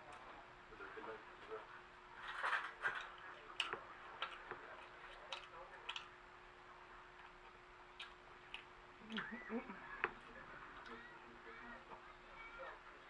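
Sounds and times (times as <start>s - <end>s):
faint steady hum: 0.0s - 13.0s
mouth clicks and smacks chewing: 2.9s - 6.2s, 7.1s - 9.3s.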